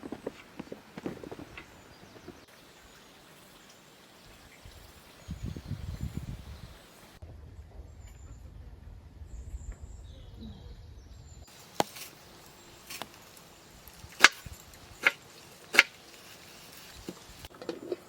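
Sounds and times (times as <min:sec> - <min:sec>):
axe chopping wood: 0:14.2 - 0:16.0.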